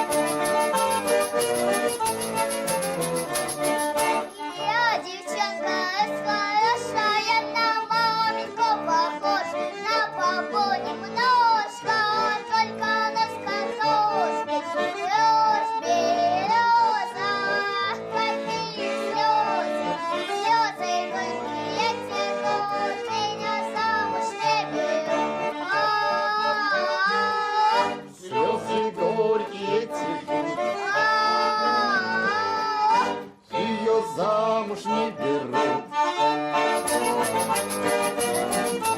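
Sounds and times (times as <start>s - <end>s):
accordion folk music: 0.0s - 38.9s.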